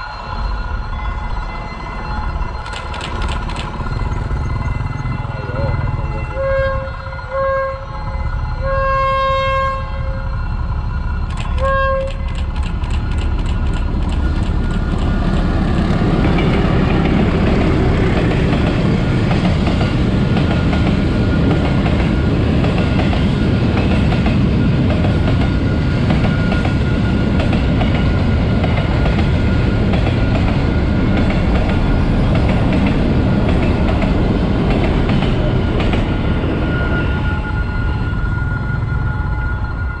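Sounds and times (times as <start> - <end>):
freight train rumbling over rails: 0.0 - 40.0.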